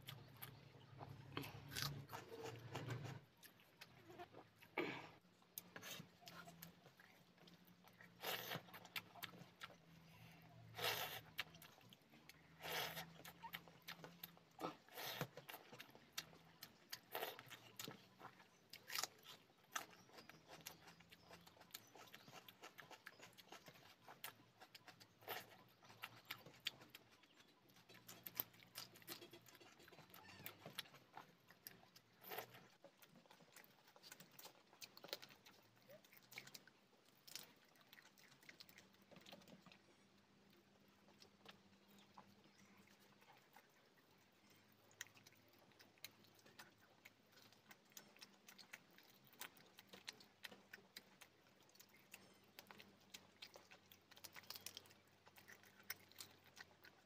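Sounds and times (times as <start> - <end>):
wet chewing and lip smacks: 0.0 - 57.0.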